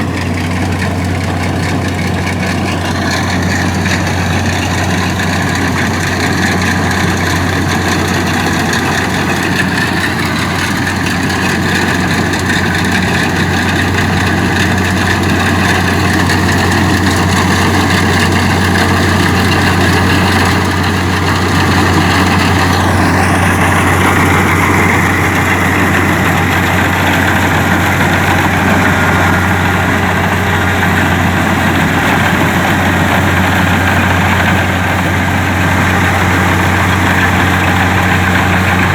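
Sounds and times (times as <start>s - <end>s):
combine harvester engine humming: 0.0s - 38.9s.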